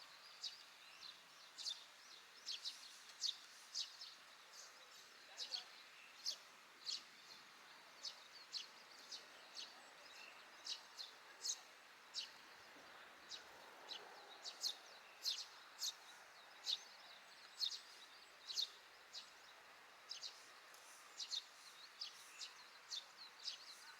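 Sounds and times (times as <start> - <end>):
faint outdoor hiss: 0.0 - 23.9
sparrows chirping: 0.0 - 23.9.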